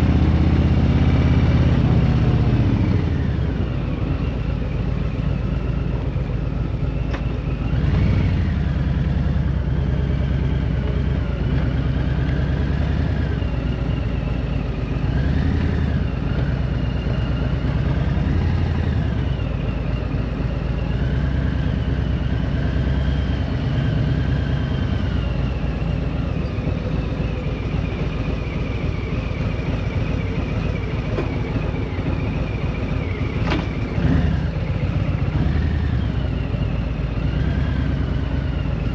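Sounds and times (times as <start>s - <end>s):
road noise: 0.0s - 38.9s
vehicle engine running: 0.0s - 38.9s.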